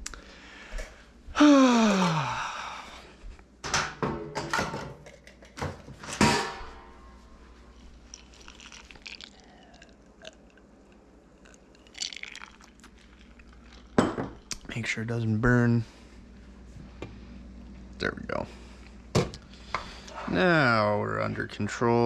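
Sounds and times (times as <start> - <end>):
cookware knocking and clinking: 3.7 - 6.8, 14.0 - 14.4.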